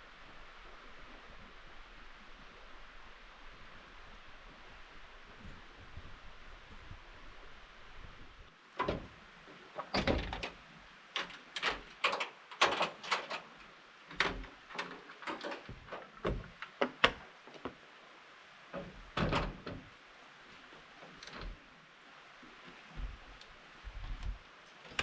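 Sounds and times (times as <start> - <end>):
objects being handled clattering: 11.2 - 17.0.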